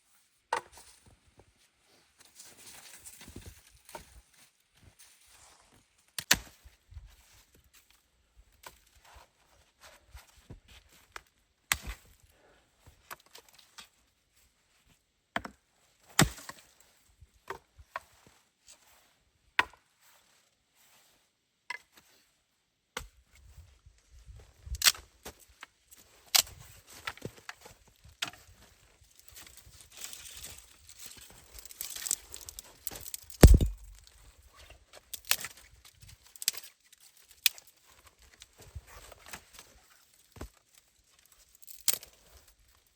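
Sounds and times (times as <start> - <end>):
axe chopping wood: 16.2 - 16.6, 33.4 - 34.1
crunching and rustling: 28.4 - 34.4.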